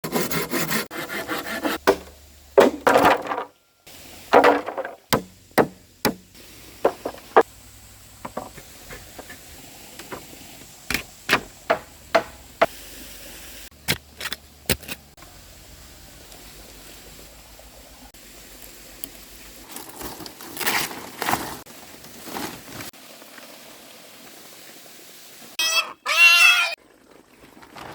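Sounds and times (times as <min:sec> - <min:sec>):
rubbing and scraping wood: 0:00.0 - 0:03.5, 0:04.3 - 0:07.5, 0:08.2 - 0:12.7
hand tool knocking wood: 0:01.8 - 0:03.5, 0:04.3 - 0:07.5, 0:10.9 - 0:12.7.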